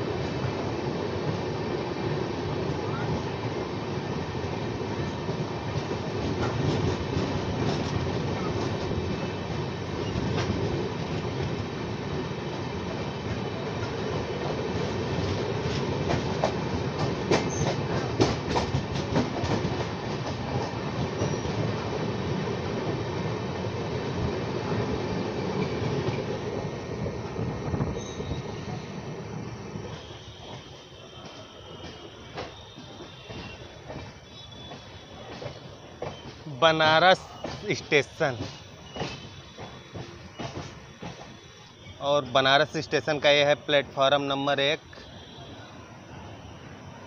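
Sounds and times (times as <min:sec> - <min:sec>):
rumble of train wheels on rail: 0:00.0 - 0:47.0
sharp clacks over rail joints: 0:16.0 - 0:21.6, 0:37.3 - 0:41.4.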